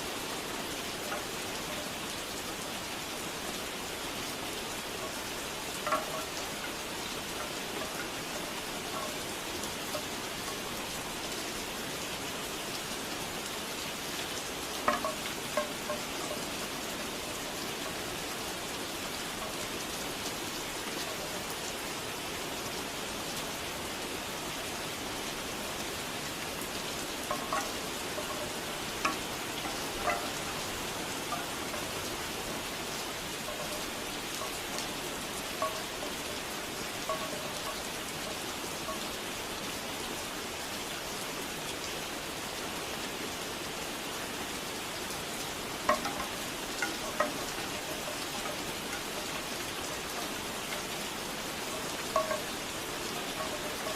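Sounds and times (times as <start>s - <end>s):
steady rain falling: 0.0s - 53.9s
bamboo wind chimes knocking: 1.0s - 2.6s, 4.9s - 10.8s, 14.7s - 18.2s, 19.4s - 19.7s, 26.8s - 39.3s, 45.5s - 53.9s.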